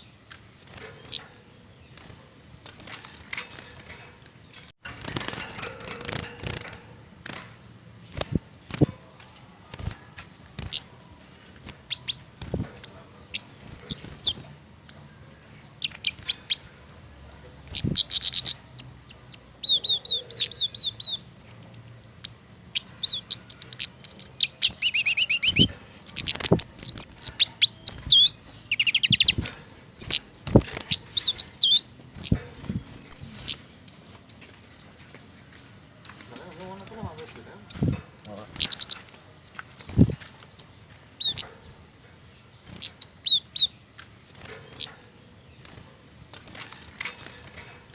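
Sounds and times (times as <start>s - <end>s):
songbird chirping and trilling: 0.0s - 47.9s.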